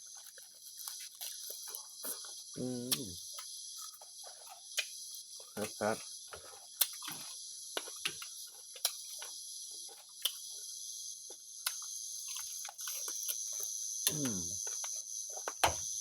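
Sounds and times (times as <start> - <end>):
crickets chirring: 0.0 - 16.0
chewing clicks and smacks: 2.9 - 5.0, 6.8 - 9.3, 10.2 - 10.5, 11.6 - 13.4
short falling vocal sound: 14.1 - 14.6.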